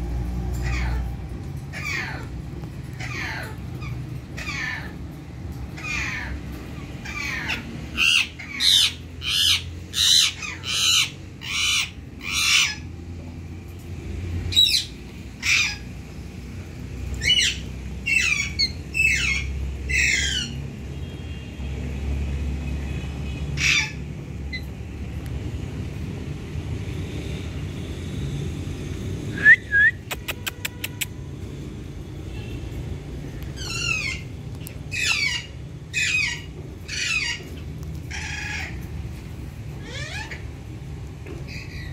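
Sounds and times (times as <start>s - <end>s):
parakeets screeching: 0.2s - 21.3s, 22.3s - 24.8s, 33.2s - 41.9s.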